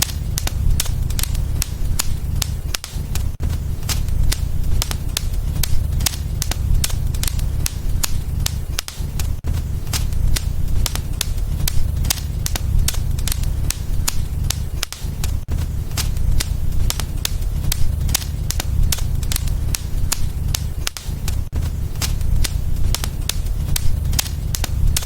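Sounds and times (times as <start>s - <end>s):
low rumble of flames: 0.0s - 25.0s
wood fire crackling and popping: 0.0s - 25.0s.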